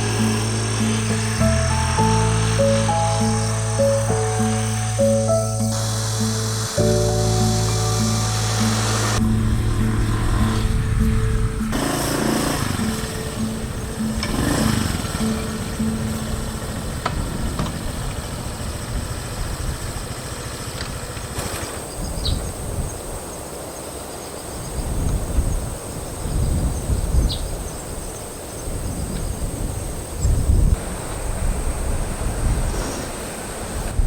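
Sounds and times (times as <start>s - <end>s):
high chirps: 0.0s - 16.8s
wind buffeting microphone: 7.8s - 23.2s, 24.6s - 34.0s.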